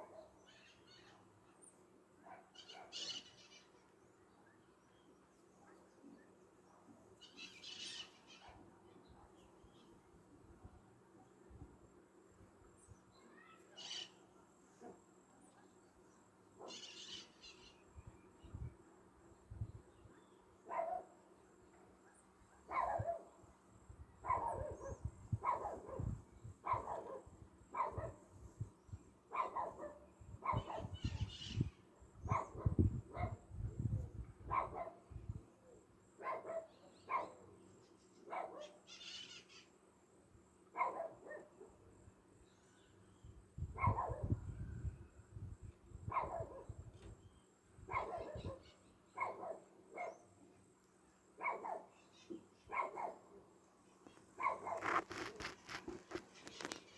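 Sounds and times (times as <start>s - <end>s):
dog barking: 2.2s - 3.0s, 20.7s - 21.2s, 22.6s - 23.4s, 24.2s - 28.2s, 29.3s - 31.0s, 32.3s - 33.4s, 34.5s - 35.0s, 36.2s - 37.4s, 38.3s - 38.8s, 40.8s - 41.8s, 43.8s - 44.4s, 46.1s - 46.8s, 47.9s - 50.2s, 51.4s - 51.9s, 52.7s - 53.3s, 54.4s - 56.2s.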